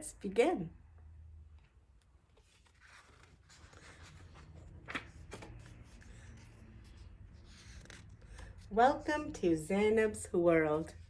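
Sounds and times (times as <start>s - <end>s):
paper rustling: 2.3s - 9.1s.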